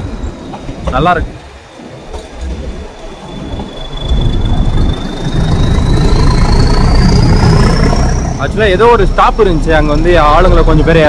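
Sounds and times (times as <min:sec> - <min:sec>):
train carriages rumbling on rails: 0:00.0 - 0:11.0
thin wheel squeal: 0:02.1 - 0:08.5.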